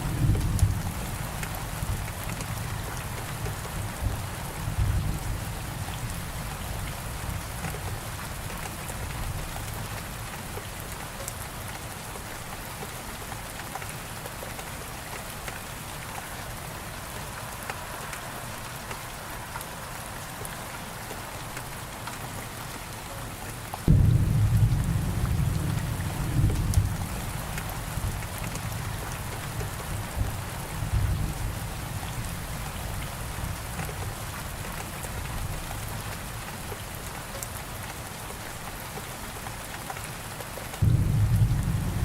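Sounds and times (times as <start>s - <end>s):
steady rain falling: 0.0s - 42.0s
thunder rumbling: 23.9s - 29.1s, 40.8s - 42.0s.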